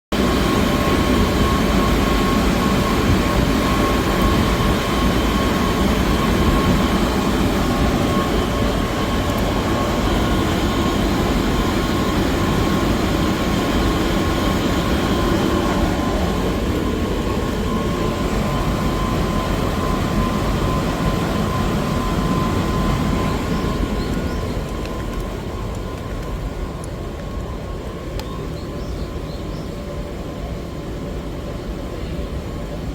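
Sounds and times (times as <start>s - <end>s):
exhaust fan rumbling with whine: 0.2s - 32.9s.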